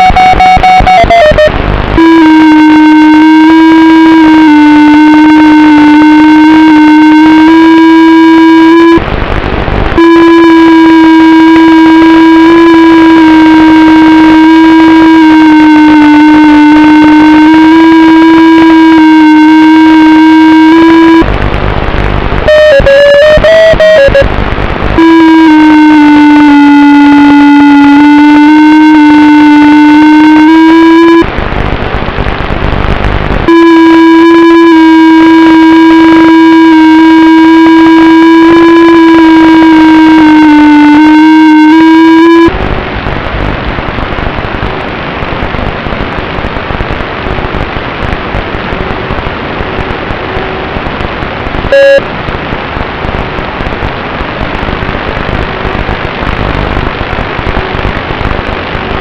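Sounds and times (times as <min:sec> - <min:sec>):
short beep: 0:00.0 - 0:02.3, 0:51.7 - 0:52.1.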